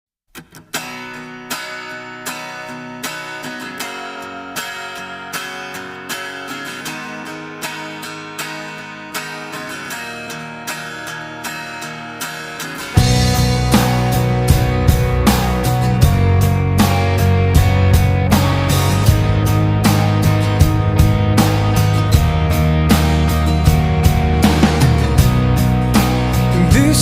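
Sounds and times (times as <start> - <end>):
guitar strumming: 0.3 - 27.0.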